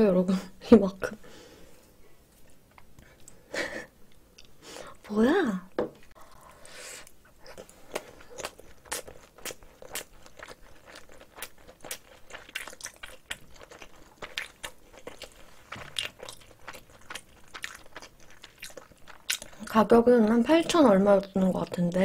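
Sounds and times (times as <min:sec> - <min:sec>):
close chewing with crunches: 0:07.0 - 0:22.0.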